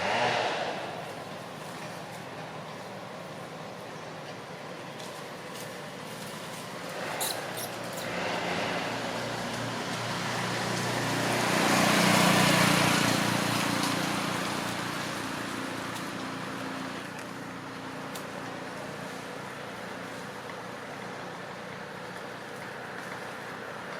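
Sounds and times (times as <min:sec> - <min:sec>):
vehicle passing by: 0:00.0 - 0:03.2, 0:05.9 - 0:23.9.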